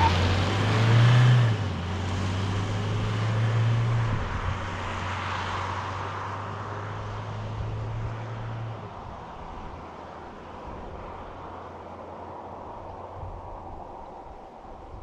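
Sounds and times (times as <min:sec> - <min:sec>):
diesel engine droning: 0:00.0 - 0:14.1
road noise: 0:00.0 - 0:15.0
wind noise: 0:02.8 - 0:05.0, 0:10.5 - 0:15.0.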